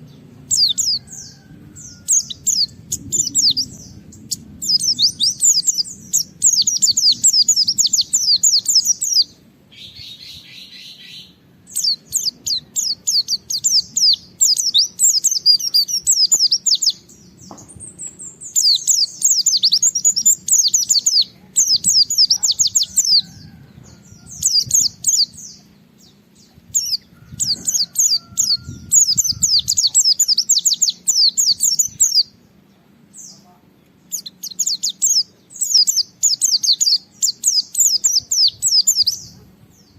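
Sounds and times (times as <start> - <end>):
white-eye high twittering song: 0.0 - 32.5.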